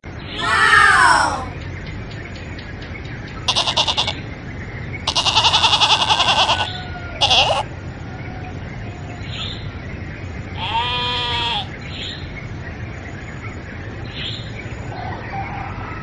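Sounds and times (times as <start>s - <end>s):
low background noise: 0.1s - 16.0s
goat bleating: 3.5s - 4.2s, 5.1s - 7.7s, 10.6s - 11.7s.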